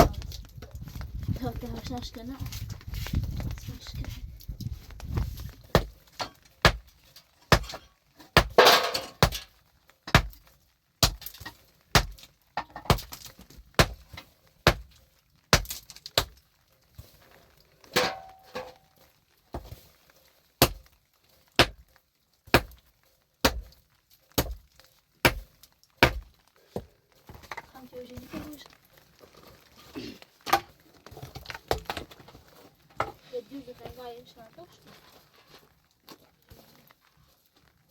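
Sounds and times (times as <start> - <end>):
hand tool striking hard material: 5.0 - 16.4, 18.0 - 18.8, 19.5 - 19.8, 20.6 - 21.0, 21.6 - 21.8, 22.4 - 22.8, 23.4 - 28.5.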